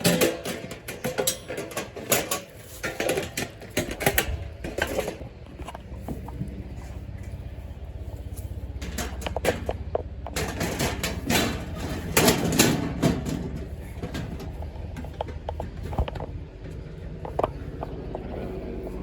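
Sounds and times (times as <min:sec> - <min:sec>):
garden bed parts clattering: 0:00.0 - 0:19.0.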